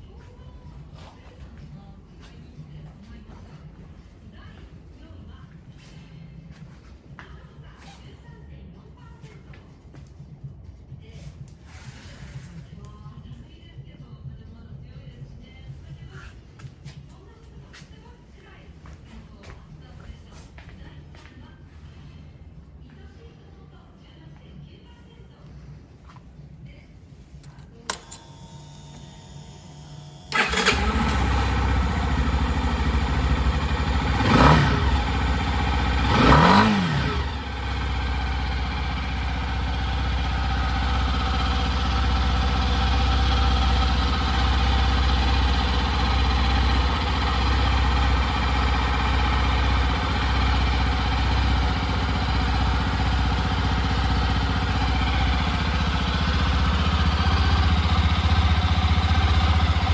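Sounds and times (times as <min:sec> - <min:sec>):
click: 0:27.4 - 0:28.4
motorcycle engine revving and idling: 0:30.1 - 0:59.9.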